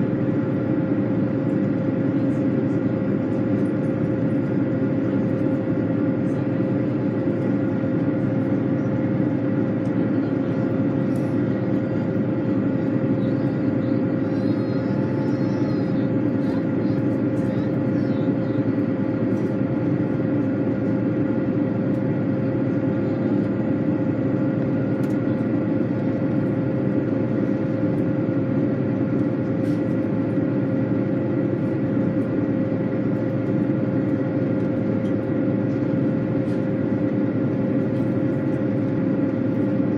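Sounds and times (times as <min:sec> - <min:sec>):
machine running hum: 0:00.0 - 0:39.9.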